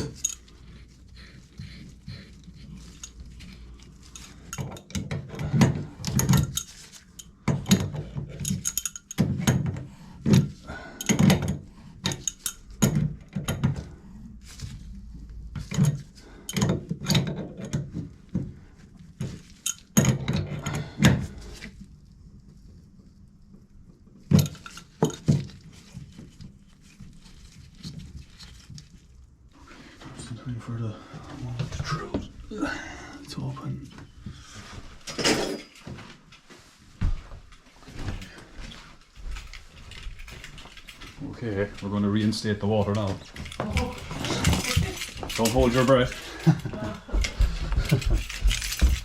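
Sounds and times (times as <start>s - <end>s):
metal tools knocking and clinking: 0.0s - 0.5s, 4.1s - 9.8s.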